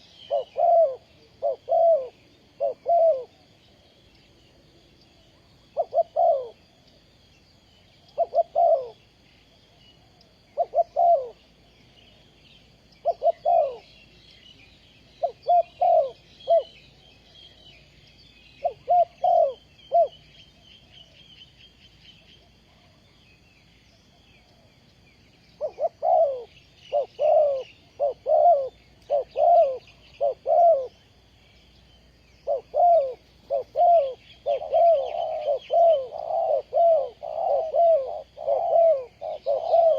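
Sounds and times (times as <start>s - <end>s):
dove cooing: 0.0s - 3.5s, 5.3s - 6.7s, 8.1s - 9.2s, 10.0s - 11.6s, 13.0s - 14.1s, 15.2s - 17.9s, 18.6s - 21.3s, 25.6s - 31.2s, 32.4s - 39.9s.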